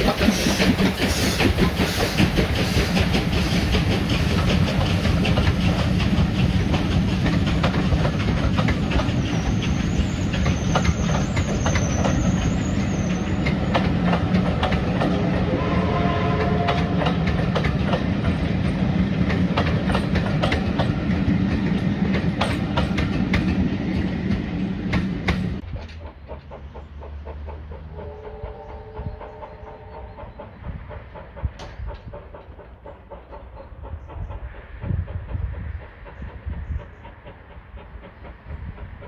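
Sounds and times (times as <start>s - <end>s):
train wheels clicking over rail joints: 0.0s - 39.0s
faint high wheel squeal: 9.2s - 13.5s.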